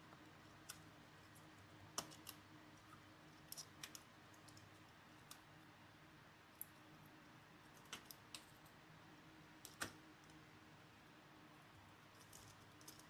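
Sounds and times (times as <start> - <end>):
faint steady hum: 0.0 - 13.0
small tools clicking and tapping: 12.2 - 13.0.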